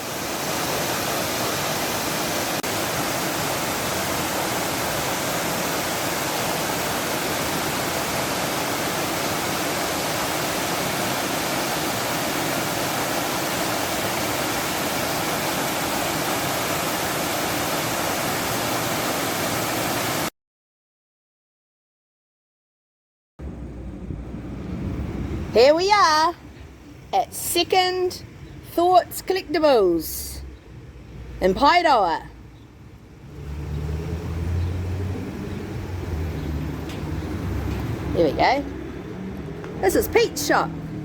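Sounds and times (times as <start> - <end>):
waterfall pouring: 0.0 - 20.3.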